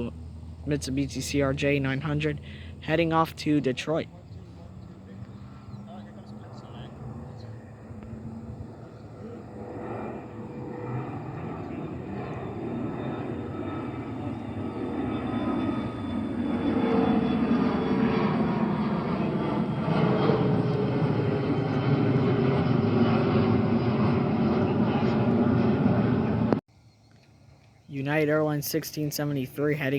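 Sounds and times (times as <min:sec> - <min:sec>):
jet engines at takeoff: 0:00.0 - 0:26.6.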